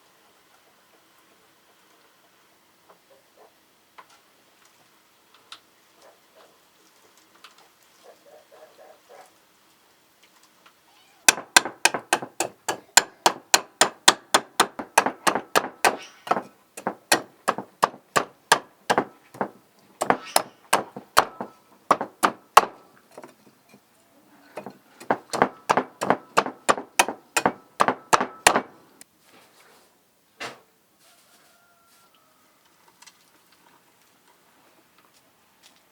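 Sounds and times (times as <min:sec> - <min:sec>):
knife chopping on cutting board: 0:11.3 - 0:22.8, 0:24.6 - 0:28.7.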